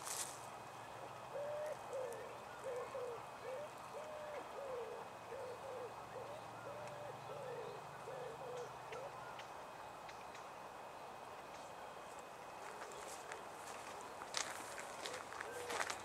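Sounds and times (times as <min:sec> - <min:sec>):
pigeon cooing: 0:01.3 - 0:09.4, 0:14.4 - 0:16.0.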